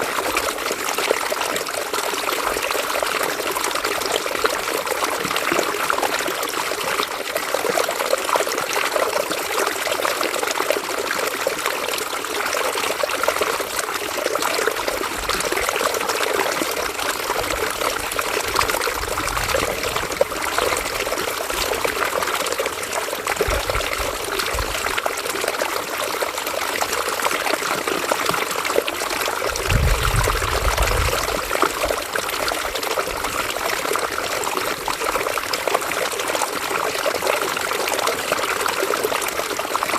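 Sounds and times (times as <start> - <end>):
river water flowing over stones: 0.0 - 39.9
brief low rumbles: 29.5 - 31.6.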